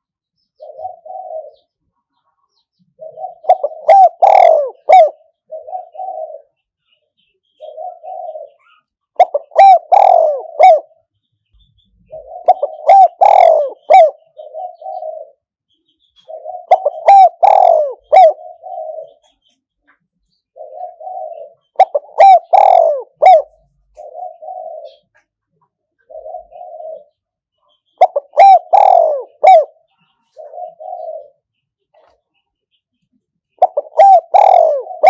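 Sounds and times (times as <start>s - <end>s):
dove cooing: 0.6s - 1.8s, 2.9s - 6.6s, 7.5s - 11.0s, 12.0s - 15.5s, 16.2s - 19.4s, 20.5s - 25.3s, 25.9s - 27.3s, 27.9s - 32.2s, 33.6s - 35.0s.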